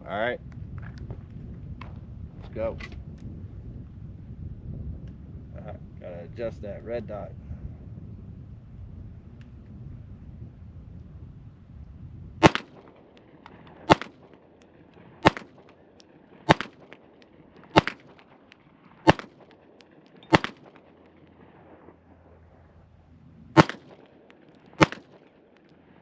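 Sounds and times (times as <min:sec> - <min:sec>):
pistol shots: 0:12.4 - 0:21.9, 0:23.6 - 0:25.8.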